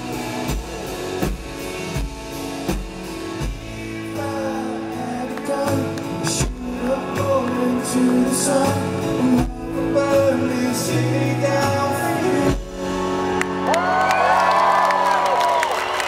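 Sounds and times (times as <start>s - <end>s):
crowd cheering and whooping: 0.0s - 1.6s, 11.9s - 16.0s
strummed guitar: 0.0s - 13.7s
live rock band playing: 0.0s - 16.0s
man singing: 3.3s - 13.2s.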